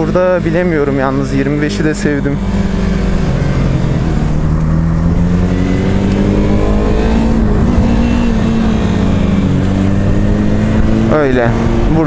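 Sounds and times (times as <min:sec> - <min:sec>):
motorcycle engine accelerating: 0:00.0 - 0:12.0
road noise: 0:00.0 - 0:12.0
wind noise: 0:02.4 - 0:12.0.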